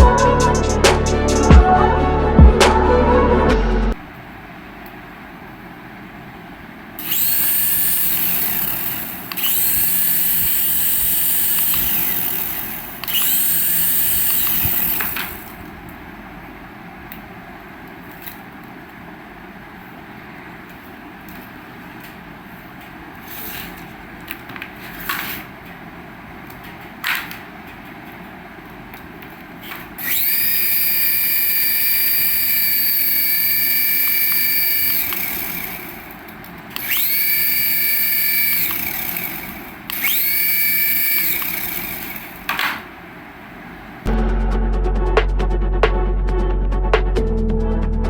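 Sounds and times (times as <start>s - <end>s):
small electric motor whirring: 7.0s - 15.6s, 30.0s - 36.2s, 36.8s - 42.4s.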